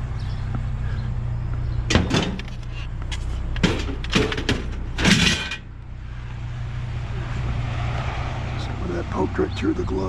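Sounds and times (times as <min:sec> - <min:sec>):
vehicle engine idling: 0:00.0 - 0:07.7
scrap clunking into truck: 0:01.9 - 0:05.7.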